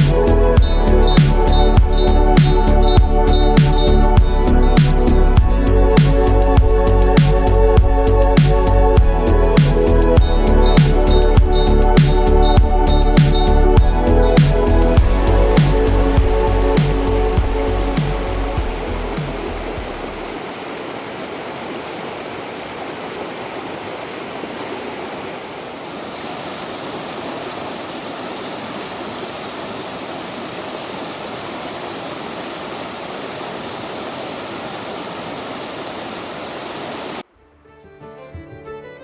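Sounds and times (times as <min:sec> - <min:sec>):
waterfall roaring: 0:15.0 - 0:37.2
violin music: 0:37.3 - 0:39.0.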